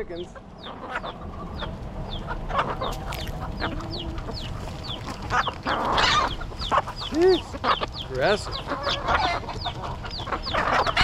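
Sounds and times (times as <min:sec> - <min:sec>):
birds squabbling over food: 0:00.0 - 0:11.0
chicks peeping: 0:00.0 - 0:11.0
hens clucking: 0:00.0 - 0:11.0.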